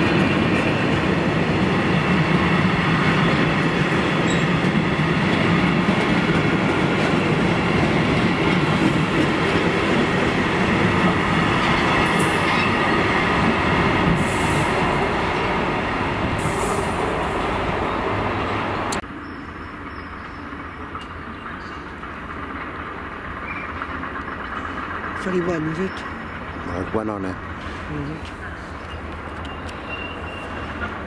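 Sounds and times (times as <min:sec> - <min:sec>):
freight train wheels clattering: 0:00.0 - 0:17.8
high wheel squeal: 0:12.1 - 0:13.0, 0:28.4 - 0:31.0.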